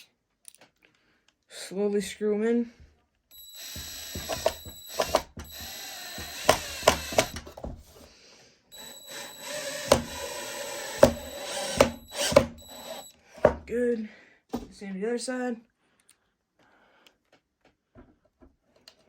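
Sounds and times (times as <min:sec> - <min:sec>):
cordless drill motor whine: 0:03.3 - 0:08.0, 0:08.7 - 0:13.6
drill clutch clicks: 0:03.4 - 0:07.7, 0:08.8 - 0:13.1.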